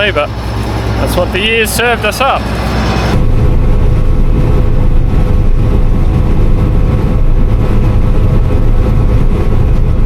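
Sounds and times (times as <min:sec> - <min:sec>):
combine harvester machinery drone: 0:00.0 - 0:10.0
steady hum: 0:00.0 - 0:10.0.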